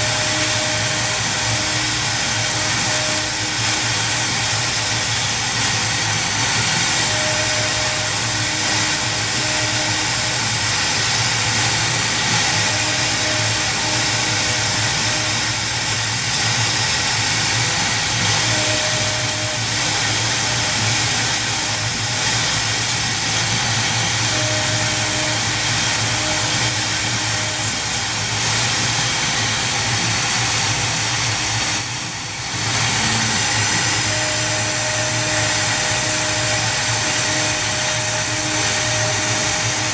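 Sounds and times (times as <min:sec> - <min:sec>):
router spindle cutting plywood: 0:00.0 - 0:39.9.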